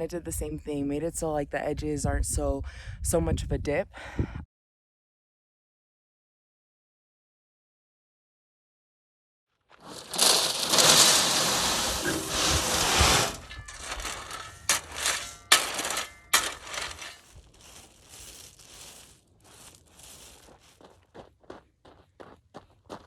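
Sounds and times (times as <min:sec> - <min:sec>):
crunches of soil and stones: 0:09.7 - 0:21.2
shovel scraping dirt: 0:09.8 - 0:20.4
footsteps on loose dirt: 0:13.6 - 0:23.0.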